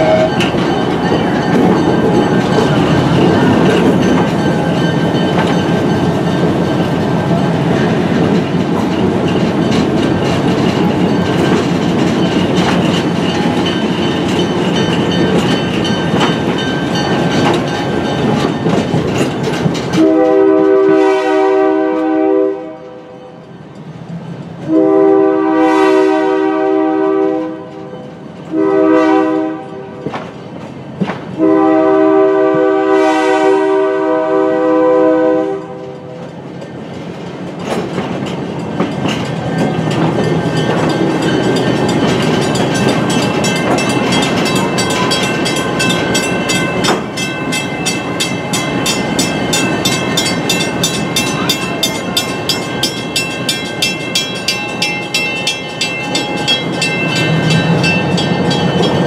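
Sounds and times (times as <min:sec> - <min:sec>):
locomotive air horn: 0:00.0 - 0:00.4, 0:19.9 - 0:23.4, 0:24.7 - 0:30.0, 0:31.4 - 0:36.2
wheels clacking over rail joints: 0:00.0 - 0:21.0, 0:30.0 - 0:31.5, 0:36.2 - 0:59.0
train rumble: 0:00.0 - 0:59.0.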